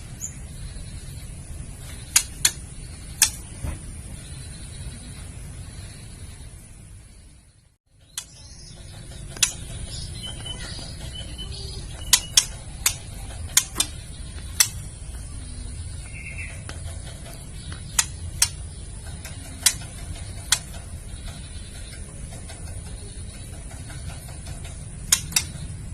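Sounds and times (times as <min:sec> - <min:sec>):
steady hiss and hum: 0:00.0 - 0:25.9.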